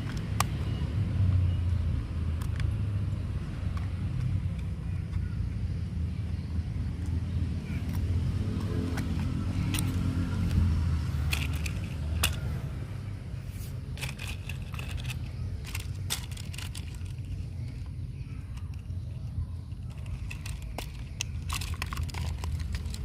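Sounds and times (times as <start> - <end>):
sharp clicks and crackles: 2.3 - 5.8, 7.8 - 12.6, 13.9 - 23.0.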